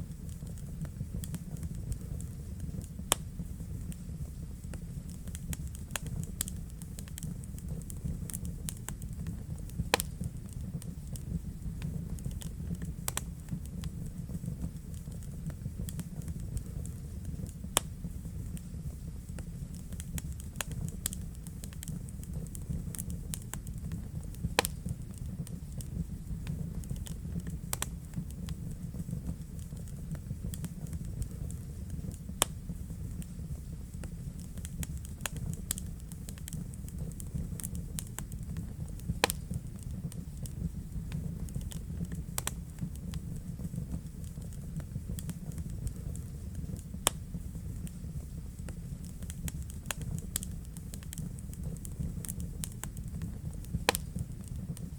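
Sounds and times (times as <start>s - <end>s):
fire crackling in fireplace: 0.0s - 54.9s.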